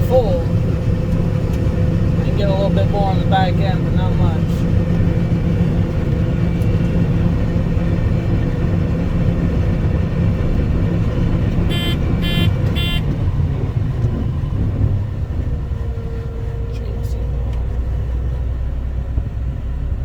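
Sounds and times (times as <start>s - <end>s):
combine harvester drone: 0.0s - 20.0s
short electronic beeps: 11.7s - 13.0s.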